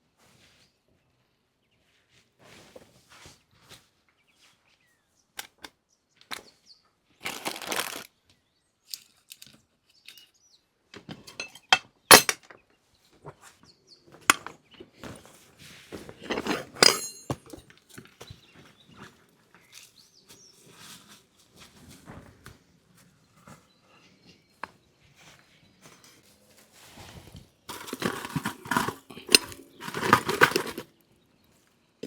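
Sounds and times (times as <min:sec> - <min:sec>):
cookware knocking and clinking: 0:11.3 - 0:12.5, 0:16.4 - 0:17.5, 0:27.7 - 0:30.8
ringing metallic clink: 0:16.8 - 0:17.5.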